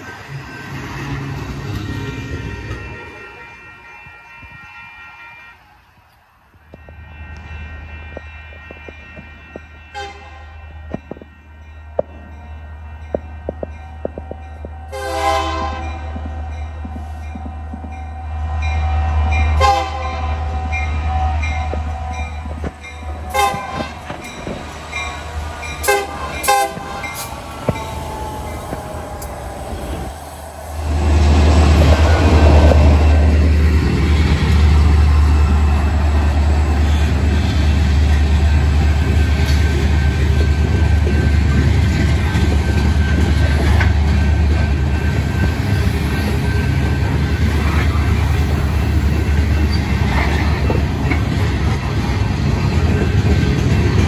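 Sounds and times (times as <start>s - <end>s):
locomotive horn blasts: 1.8s - 5.8s, 6.7s - 11.2s, 14.9s - 16.2s, 19.6s - 27.3s
locomotive engine rumble: 6.8s - 54.0s.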